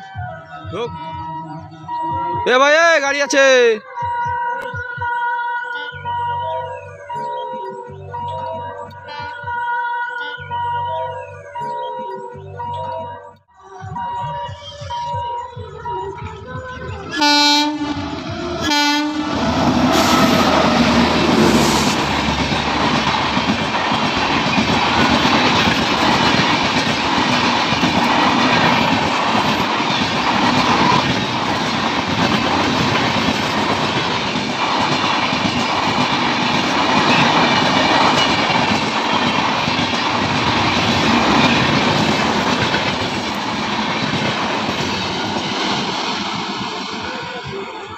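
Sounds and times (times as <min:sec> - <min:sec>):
train passing rumble: 0:15.7 - 0:47.9
train horn blasts: 0:17.1 - 0:22.2
wheels clacking over rail joints: 0:18.0 - 0:47.4.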